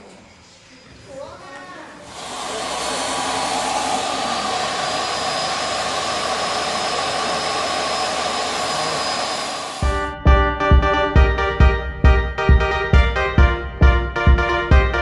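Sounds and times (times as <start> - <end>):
machine whooshing hiss: 2.0 - 9.8.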